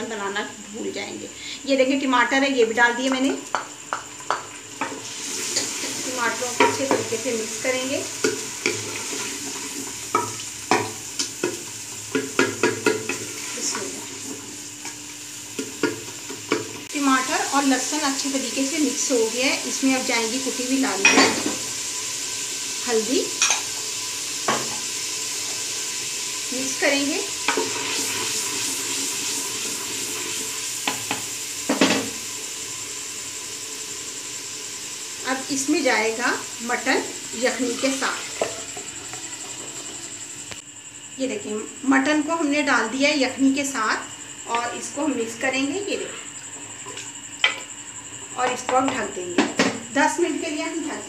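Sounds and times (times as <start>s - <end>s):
food sizzling in hot oil: 0.0s - 51.0s
spoon stirring and knocking pot: 3.1s - 5.0s, 10.1s - 13.2s
ladle knocking and scraping pot: 37.7s - 40.0s.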